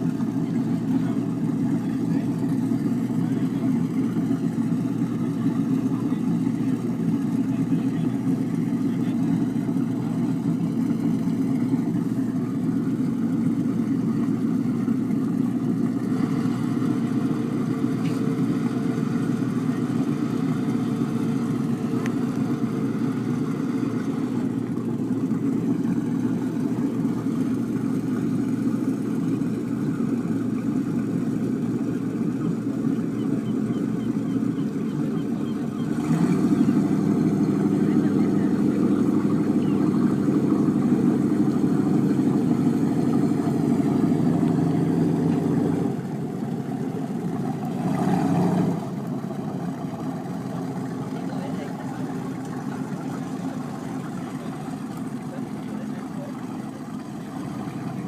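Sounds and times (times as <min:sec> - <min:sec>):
boat engine droning: 0:00.0 - 0:58.0.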